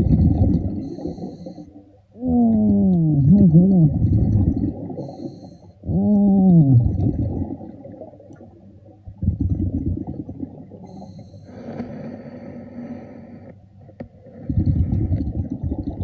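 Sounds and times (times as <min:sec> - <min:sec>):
muffled underwater rumble and bubbles: 0:00.0 - 0:16.0.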